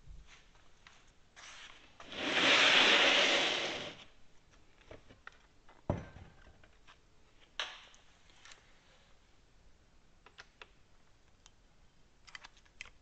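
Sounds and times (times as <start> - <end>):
plastic tray scraping on bench: 2.0 - 4.0.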